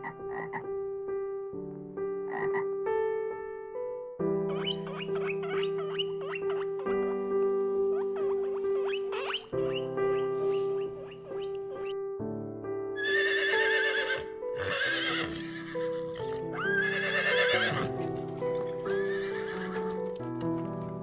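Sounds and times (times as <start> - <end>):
background music: 0.0 - 21.0
animal whinny-like calls: 4.5 - 7.3, 7.9 - 11.9, 13.0 - 18.0, 18.9 - 19.7.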